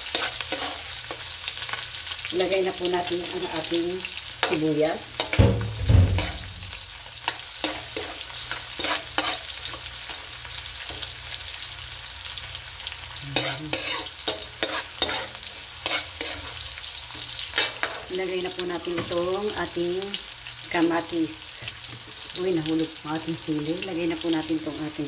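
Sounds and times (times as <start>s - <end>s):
metal spoon scraping a wok: 0.0s - 1.2s, 4.4s - 6.5s, 7.2s - 10.2s, 13.4s - 18.1s
aromatics sizzling in hot oil: 0.0s - 25.0s
low thump: 5.4s - 6.7s.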